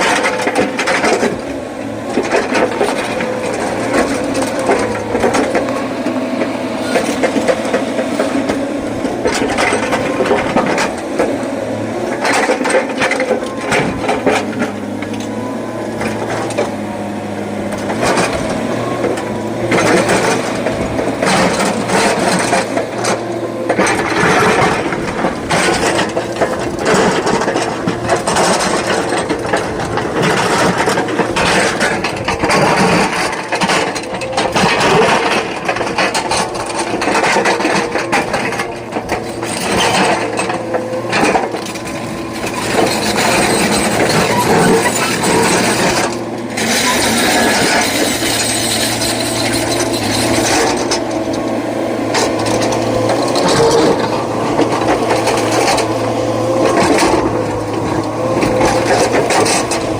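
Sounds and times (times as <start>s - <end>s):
excavator engine running: 0.0s - 59.9s
rock and metal clattering: 17.8s - 59.9s.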